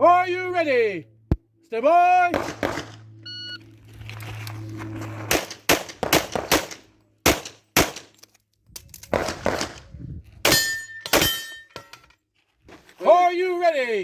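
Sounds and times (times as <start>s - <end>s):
pistol shots: 2.3s - 3.0s, 5.3s - 8.1s
ringing tone: 3.1s - 3.7s.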